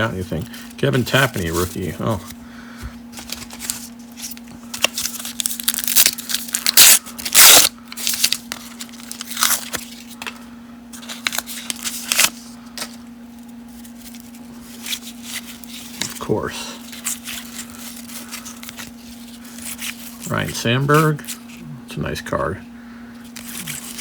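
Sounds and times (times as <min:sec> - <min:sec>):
cards rustling and sliding: 0:00.0 - 0:21.6, 0:23.2 - 0:24.0
steady low hum: 0:00.0 - 0:24.0
wrapper tearing: 0:03.2 - 0:10.2, 0:11.0 - 0:12.4, 0:23.4 - 0:24.0.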